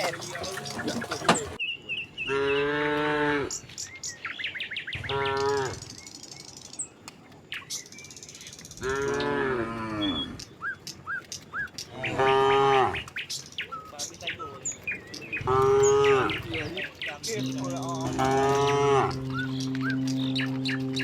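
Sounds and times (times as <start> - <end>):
cattle mooing: 0.0 - 1.6, 15.4 - 21.0.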